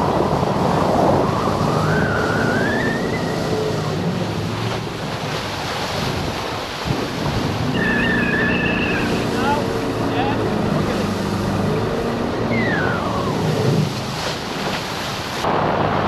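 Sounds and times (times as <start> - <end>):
boat engine running: 0.0 - 16.0
water rushing: 0.0 - 16.0
wind on microphone: 0.0 - 16.0
whine rising in pitch: 1.2 - 4.0, 7.7 - 13.9.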